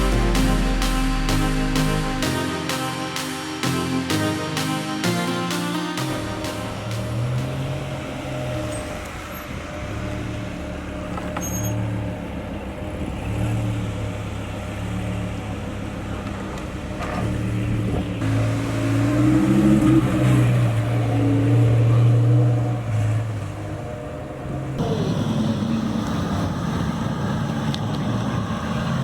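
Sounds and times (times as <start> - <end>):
car engine running low revs: 6.9 - 29.0.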